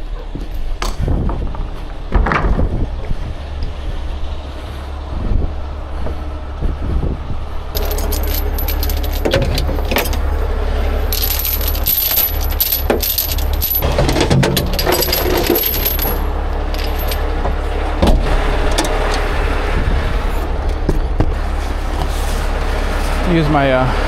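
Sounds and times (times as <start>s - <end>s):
truck engine running: 0.0s - 24.0s
metal chain clinking and rattling: 7.8s - 10.4s, 11.0s - 17.3s.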